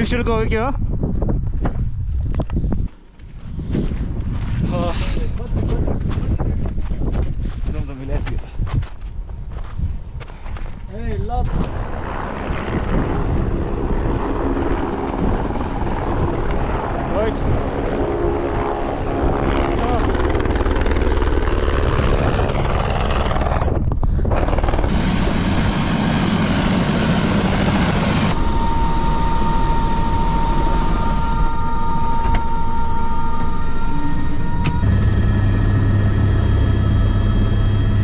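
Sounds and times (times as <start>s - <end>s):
helicopter rotor and engine drone: 10.0s - 38.0s
steady whine: 10.6s - 38.0s.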